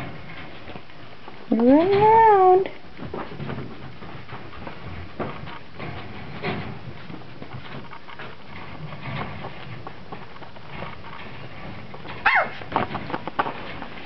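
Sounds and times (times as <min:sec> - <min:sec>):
puppies scratching and shuffling: 0:00.0 - 0:14.0
puppy yelping: 0:12.2 - 0:12.6.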